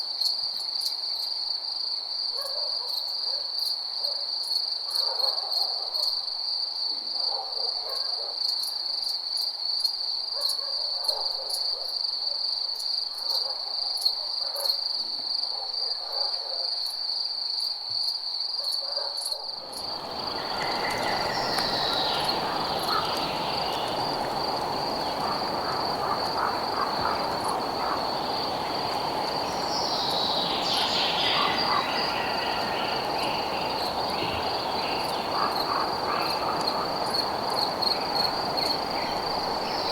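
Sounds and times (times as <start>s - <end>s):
crickets trilling: 16.9s - 39.9s
steady rushing hiss: 19.7s - 39.9s.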